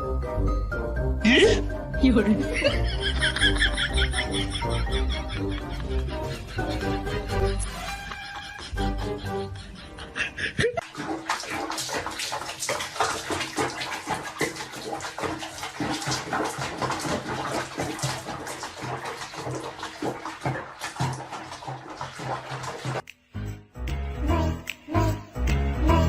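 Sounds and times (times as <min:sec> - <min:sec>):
water splashing: 0:10.8 - 0:23.0.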